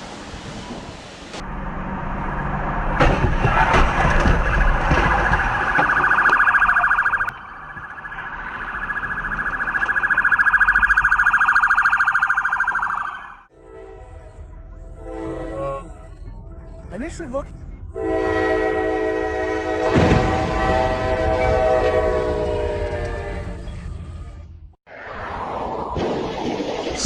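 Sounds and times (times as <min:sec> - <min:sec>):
electronic alarm tone pulsing: 0:04.5 - 0:13.4.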